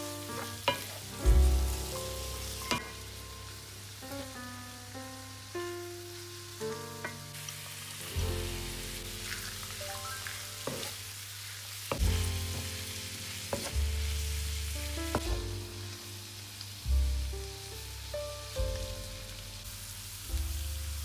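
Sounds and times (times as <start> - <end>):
food sizzling in a pan: 0.0 - 21.0
background music with bass line: 1.0 - 3.5, 8.1 - 9.5, 12.0 - 13.0, 13.7 - 16.0, 16.9 - 21.0.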